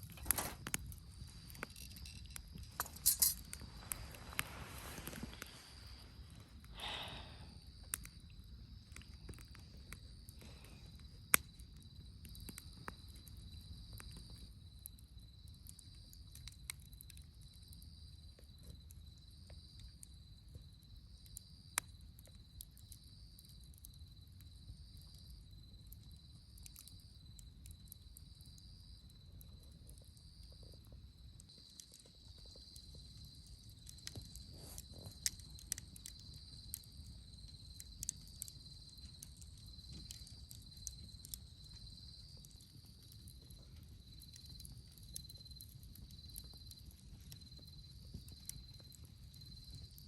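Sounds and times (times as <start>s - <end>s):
sharp pops of fire: 0.0s - 14.5s, 31.5s - 50.0s
campfire wood crackling: 0.0s - 50.0s.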